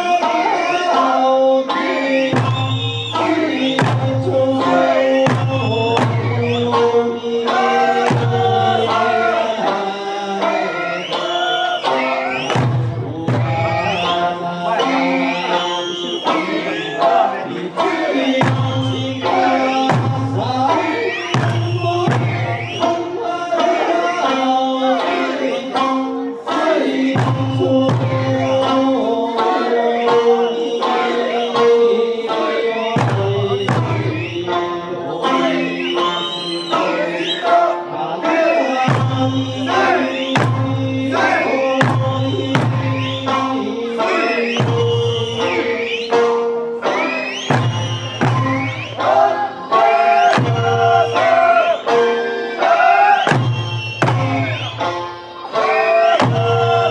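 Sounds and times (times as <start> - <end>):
folk singer singing: 0.0 - 56.9
instrumental accompaniment: 0.0 - 56.9
sharp drum strikes: 2.4 - 9.8, 11.9 - 14.3, 16.3 - 24.2, 25.7 - 30.4, 32.8 - 35.5, 38.8 - 45.7, 47.5 - 52.1, 53.2 - 56.9.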